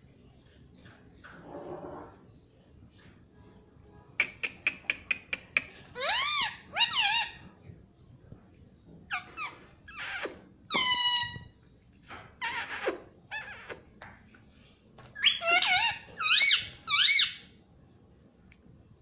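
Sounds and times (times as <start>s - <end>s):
parrot chirping and squawking: 4.2s - 7.4s, 9.1s - 11.5s, 12.1s - 13.9s, 15.1s - 17.5s.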